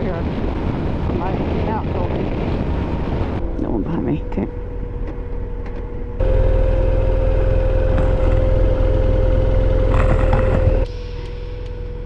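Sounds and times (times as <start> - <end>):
motorcycle engine rumbling: 4.5 - 12.0.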